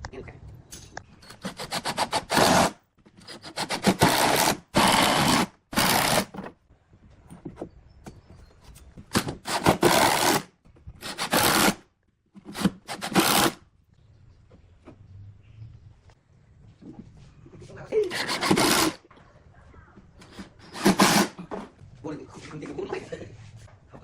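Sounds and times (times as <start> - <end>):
hand tool rasping on wood: 1.3 - 6.3, 11.0 - 11.8, 12.5 - 13.6, 18.1 - 19.0, 20.2 - 21.4.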